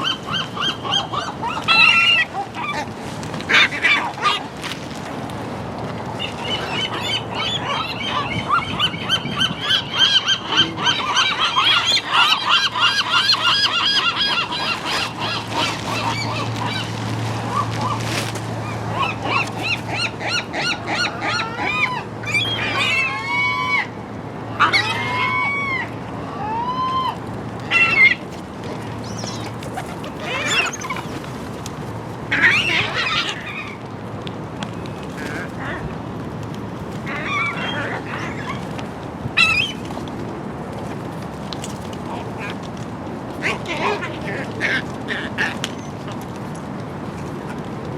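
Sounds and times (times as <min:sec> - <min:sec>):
gulls calling: 0:00.0 - 0:04.5, 0:06.1 - 0:31.6, 0:32.2 - 0:33.9, 0:36.9 - 0:40.0.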